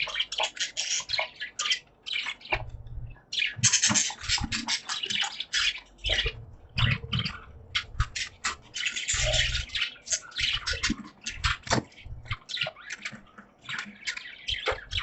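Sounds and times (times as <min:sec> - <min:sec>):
budgies chirping and warbling: 0:00.0 - 0:15.0.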